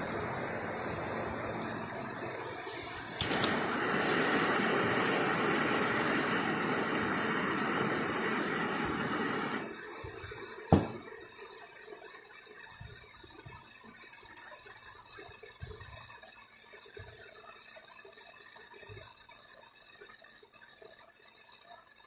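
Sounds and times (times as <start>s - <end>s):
machine fan blowing: 0.0s - 11.2s.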